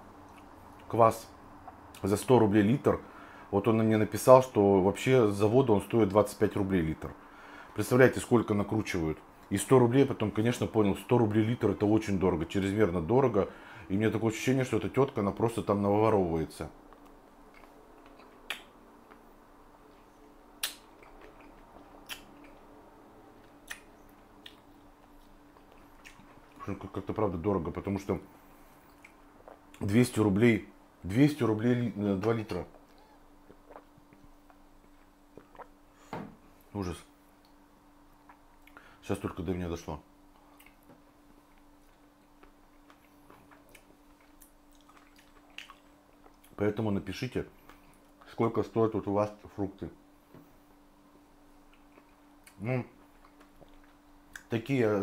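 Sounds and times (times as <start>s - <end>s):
person chewing fruit: 0.2s - 0.9s, 16.8s - 27.0s, 27.8s - 29.9s, 32.2s - 36.7s, 37.3s - 39.0s, 40.2s - 46.6s, 47.5s - 48.3s, 51.5s - 54.5s
wet lip clicks: 16.9s - 19.2s, 19.9s - 22.7s, 23.4s - 26.6s, 28.9s - 29.8s, 32.2s - 35.8s, 38.2s - 38.9s, 40.3s - 40.9s, 41.5s - 46.6s, 53.2s - 54.5s.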